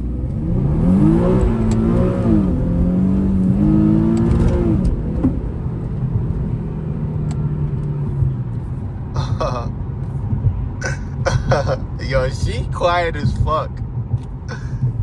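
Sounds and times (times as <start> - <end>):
car engine revving: 0.0 - 10.2.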